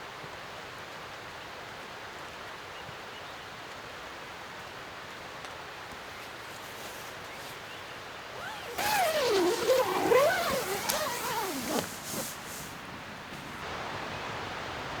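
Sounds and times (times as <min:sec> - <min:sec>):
light rain hissing: 0:08.4 - 0:15.0.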